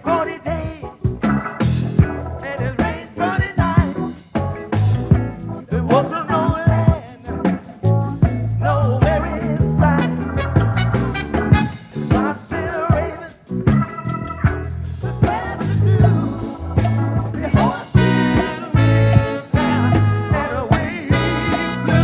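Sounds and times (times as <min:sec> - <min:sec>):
drums: 0:00.0 - 0:22.0
electric bass: 0:00.0 - 0:22.0
wavering lead melody: 0:18.0 - 0:22.0.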